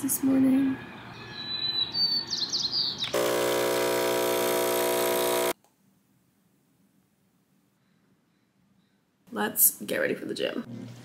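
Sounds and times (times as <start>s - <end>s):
birds chirping: 0.1s - 3.3s
loud buzzing tone: 3.2s - 5.6s.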